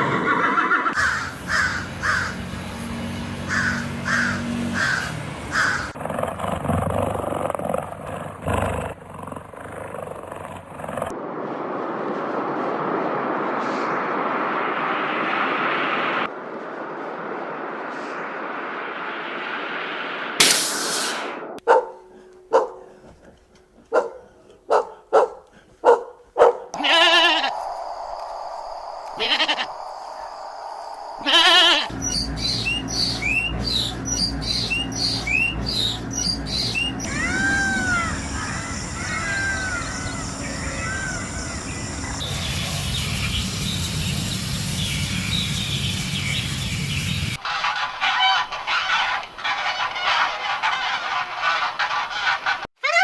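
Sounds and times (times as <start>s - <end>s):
animal bleating: 26.8s - 27.5s, 29.2s - 29.7s, 31.2s - 31.9s
rapid bird chirping: 31.9s - 37.1s, 38.2s - 47.4s.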